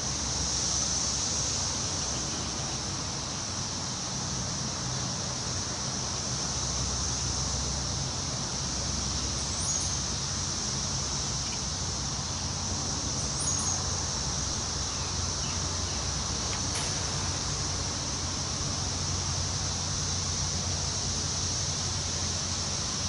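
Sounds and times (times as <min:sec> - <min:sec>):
high insect drone: 0:00.0 - 0:23.0
wind rustling tree leaves: 0:00.0 - 0:23.0
high bird chirps: 0:13.2 - 0:13.9.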